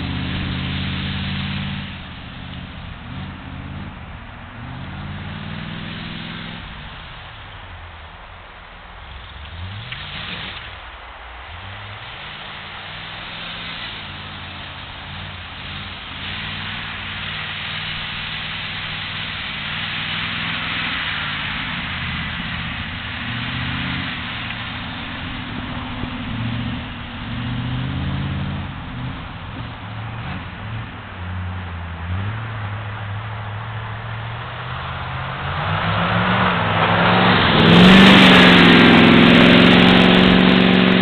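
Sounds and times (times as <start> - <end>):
vehicle engine revving: 0.0 - 8.0, 9.0 - 41.0
steady hiss: 0.0 - 31.5.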